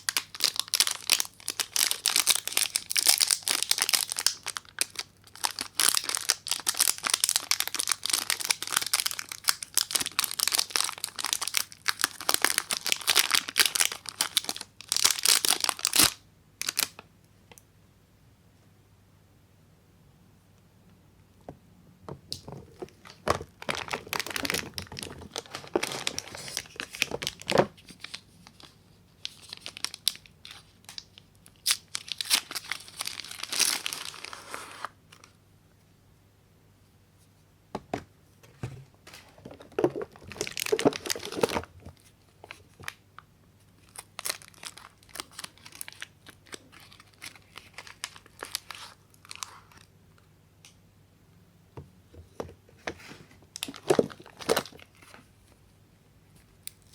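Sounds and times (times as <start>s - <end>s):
packaging tearing and crinkling: 0.0s - 17.0s, 22.8s - 34.9s, 40.0s - 41.7s, 43.8s - 49.9s, 53.6s - 55.2s.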